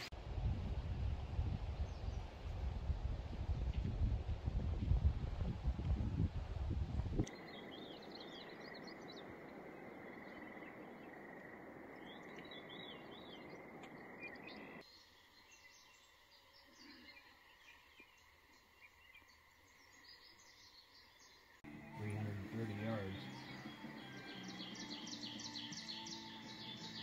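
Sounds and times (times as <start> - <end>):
small birds chirping: 7.2 - 27.0.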